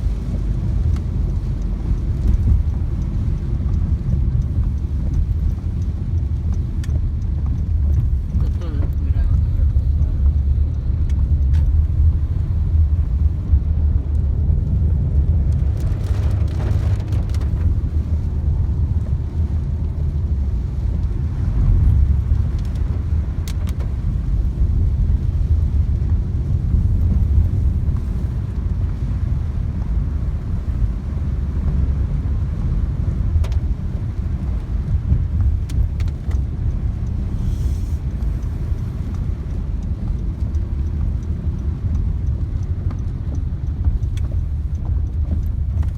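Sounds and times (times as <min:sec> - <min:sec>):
heavy rain downpour: 0:11.6 - 0:44.8.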